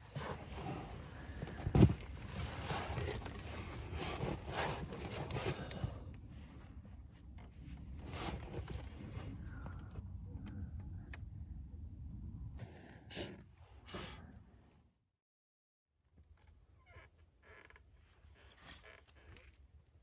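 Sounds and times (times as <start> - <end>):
rustling and scraping: 0.0 - 9.7.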